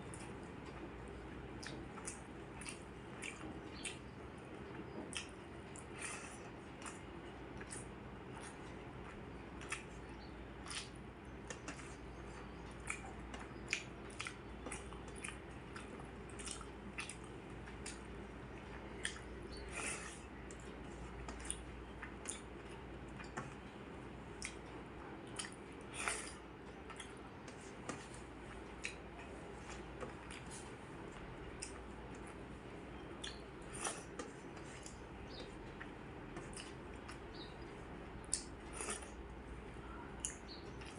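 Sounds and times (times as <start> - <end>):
person chewing food: 0.0 - 40.9
wet mouth clicks and smacks: 24.4 - 24.6, 25.3 - 27.2, 38.3 - 39.1.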